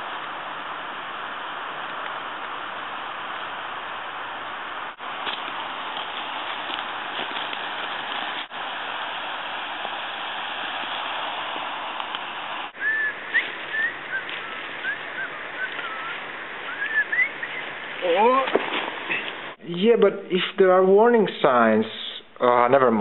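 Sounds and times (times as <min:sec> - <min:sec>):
steady outdoor hiss: 0:00.0 - 0:23.0
quick chirping bird calls: 0:12.8 - 0:17.9.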